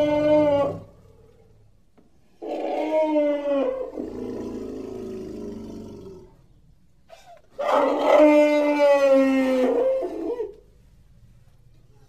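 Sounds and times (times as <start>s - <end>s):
low rumbling growl: 0.0s - 1.7s, 2.4s - 6.6s.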